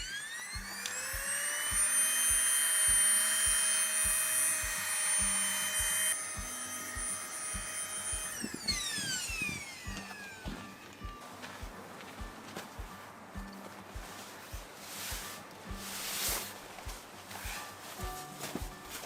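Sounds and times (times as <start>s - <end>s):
small electric motor whining: 0.0s - 11.2s
soft musical beat: 0.0s - 19.0s.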